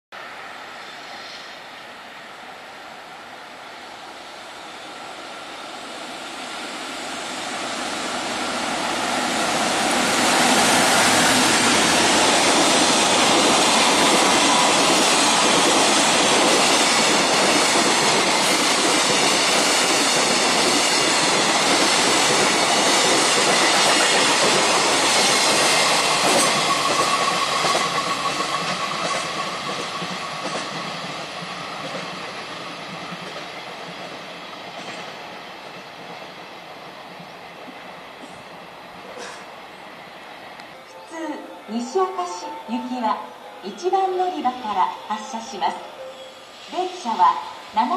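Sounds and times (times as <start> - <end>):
freight train passing: 0.1 - 47.9
wheels clattering on rail: 10.4 - 36.2.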